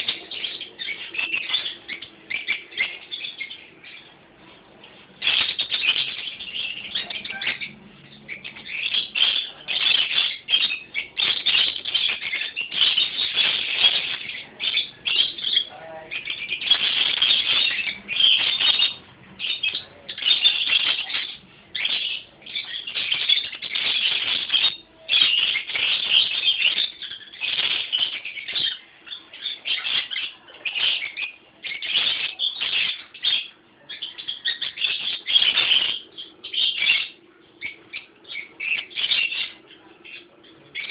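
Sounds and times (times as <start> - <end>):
parrot screeching: 5.2 - 39.6.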